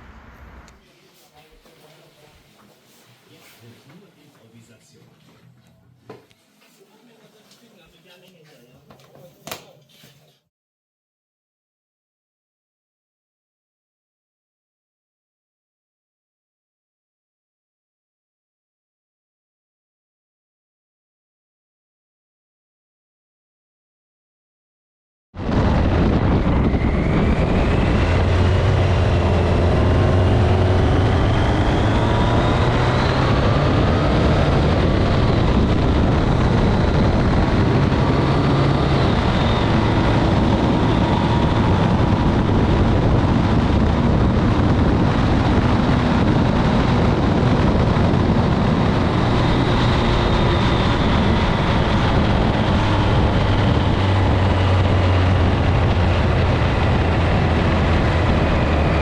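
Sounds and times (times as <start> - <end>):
motorcycle engine accelerating: 25.4 - 59.0
wind rush: 25.4 - 59.0.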